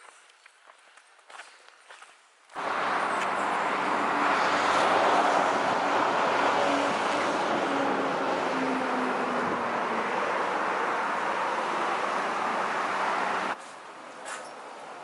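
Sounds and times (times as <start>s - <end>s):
road and tyre noise: 0.0s - 15.0s.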